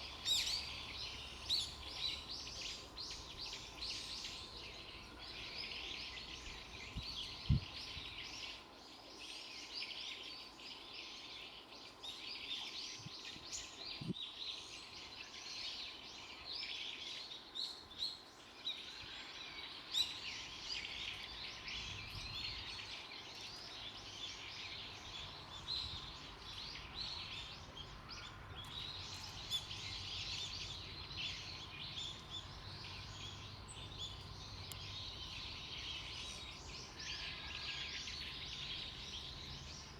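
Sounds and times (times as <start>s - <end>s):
birds chirping: 0.0s - 8.6s, 20.0s - 39.9s.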